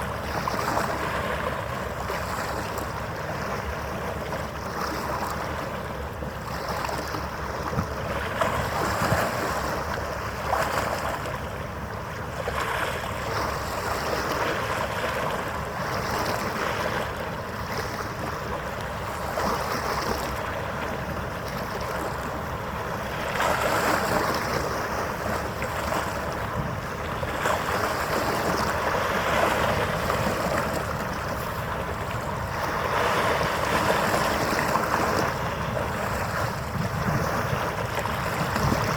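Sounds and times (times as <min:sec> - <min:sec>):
wind on microphone: 0:23.4 - 0:38.9.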